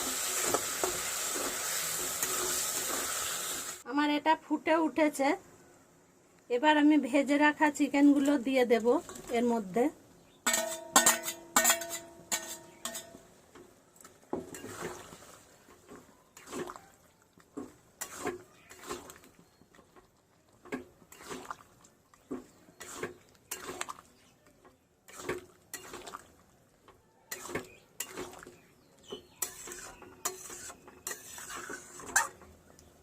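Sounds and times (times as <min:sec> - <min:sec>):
spatula clinking and scraping pan: 0:10.4 - 0:13.4, 0:14.4 - 0:16.8, 0:17.6 - 0:20.0, 0:22.3 - 0:24.0, 0:25.1 - 0:26.2, 0:27.3 - 0:32.6.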